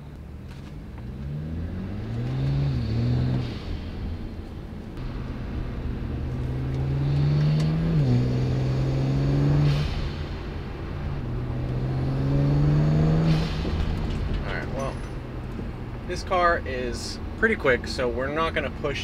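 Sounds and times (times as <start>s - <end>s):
car engine accelerating: 0.1s - 17.4s
turbo boost whoosh: 5.6s - 14.3s.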